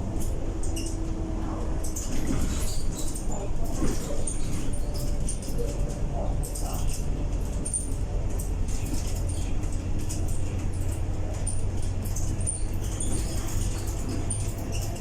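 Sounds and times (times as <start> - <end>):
bus engine drone: 0.0 - 15.0
cabin fittings squeaking and rattling: 6.4 - 15.0.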